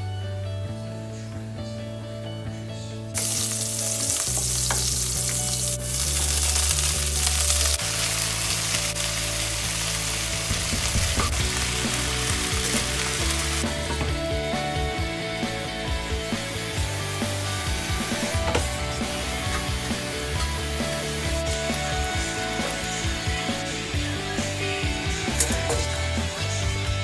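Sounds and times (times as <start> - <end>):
food sizzling in a wok: 3.2 - 26.7.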